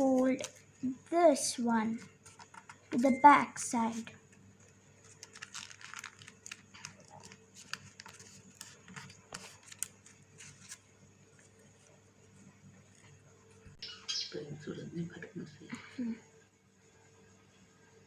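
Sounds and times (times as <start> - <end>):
paper rustling and crinkling: 3.9 - 12.0.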